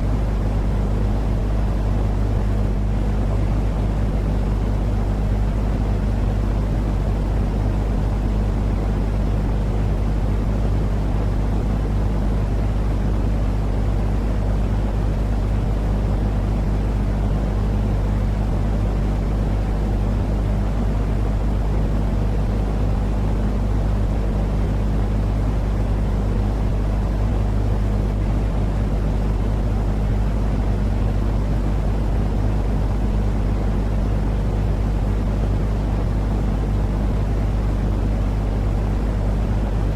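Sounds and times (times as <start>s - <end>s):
low rumbling white noise: 0.0s - 39.9s.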